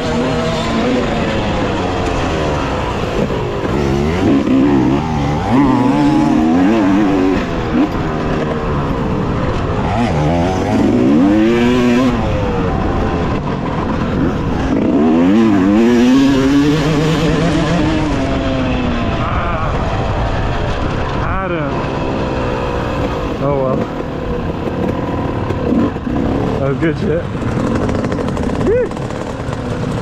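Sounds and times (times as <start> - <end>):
dirt bike engine revving: 0.0 - 30.0
steady rushing noise: 0.0 - 30.0.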